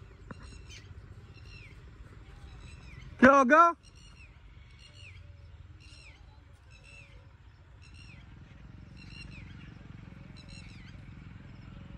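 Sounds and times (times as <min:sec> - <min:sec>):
low steady rumble: 0:00.0 - 0:03.2.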